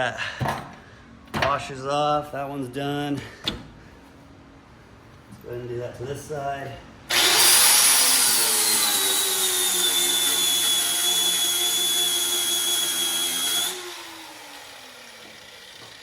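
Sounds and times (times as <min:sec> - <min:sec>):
grinder motor winding down: 0:07.1 - 0:16.0
power grinder cutting metal: 0:07.1 - 0:16.0.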